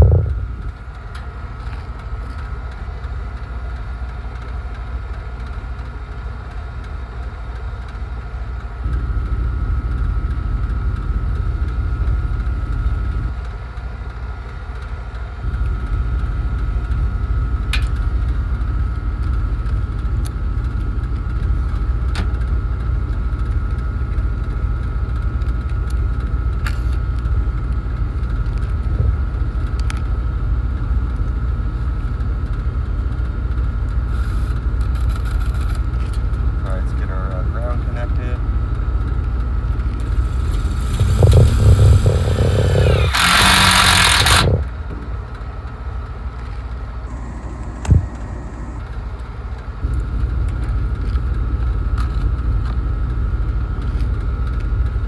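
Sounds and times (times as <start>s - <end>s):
machine rumble with high whine: 0.0s - 55.0s
sharp clicks: 40.0s - 44.7s.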